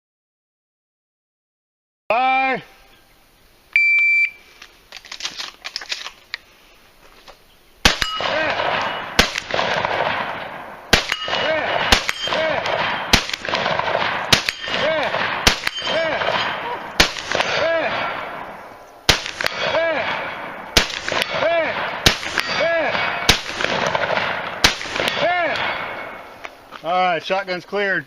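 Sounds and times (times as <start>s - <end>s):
shot timer beep: 3.8s - 4.4s
shotgun shots: 7.8s - 26.4s
steel target clanging: 7.9s - 9.2s, 11.0s - 13.4s, 14.0s - 18.3s, 22.1s - 23.6s.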